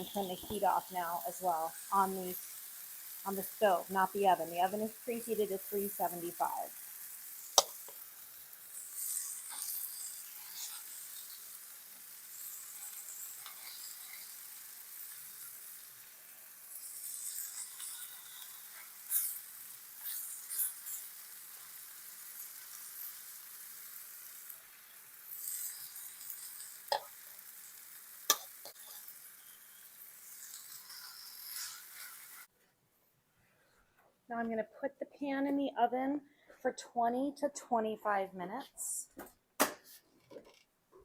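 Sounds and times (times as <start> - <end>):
chicken sizzling in a skillet: 0.0 - 32.5.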